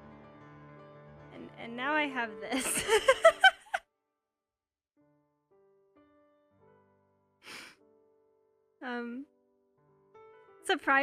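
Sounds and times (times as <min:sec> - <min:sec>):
soft piano music: 0:00.0 - 0:03.7, 0:05.0 - 0:11.0.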